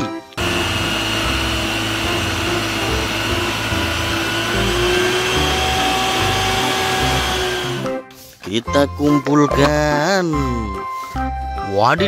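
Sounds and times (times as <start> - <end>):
water cannon jet hissing: 0.4 - 7.9
motor hum: 0.4 - 8.0.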